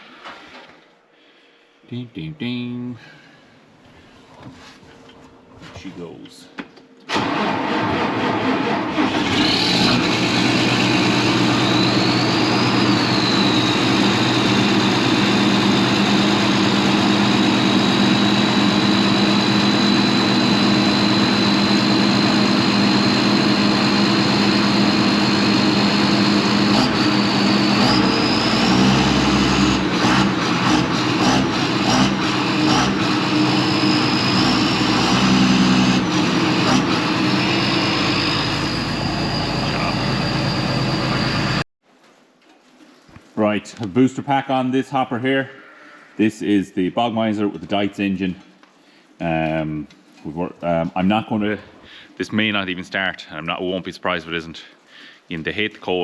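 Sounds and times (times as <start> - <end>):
tractor diesel engine running: 7.1 - 41.6
high steady whine: 9.9 - 41.6.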